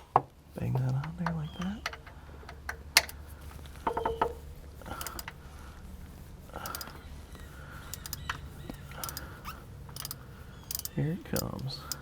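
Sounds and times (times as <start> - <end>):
light taps and clicks of tools: 0.0 - 5.4, 6.6 - 12.0
metal fitting clinking: 3.8 - 5.4, 7.9 - 9.3, 9.9 - 12.0.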